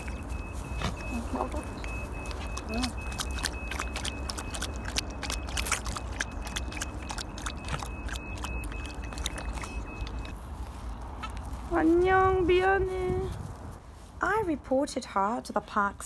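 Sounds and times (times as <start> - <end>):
puppy lapping water: 0.0 - 10.5.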